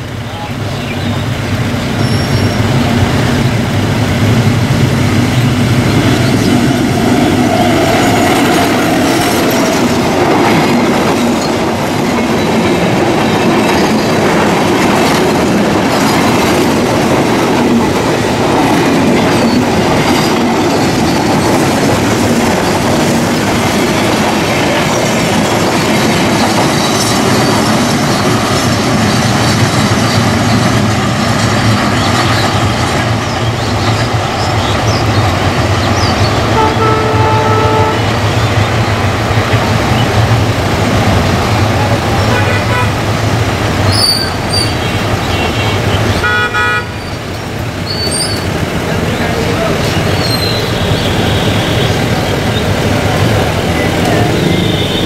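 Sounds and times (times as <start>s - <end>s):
locomotive engine hum: 0.0s - 55.0s
train wheels clattering over rail joints: 1.5s - 37.0s.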